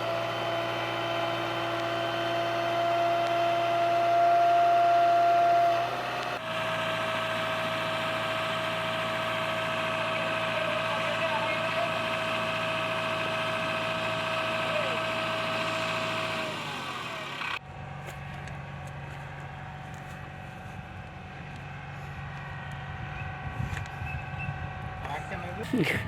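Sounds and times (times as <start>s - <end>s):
diesel engine running with whine: 0.0s - 26.0s.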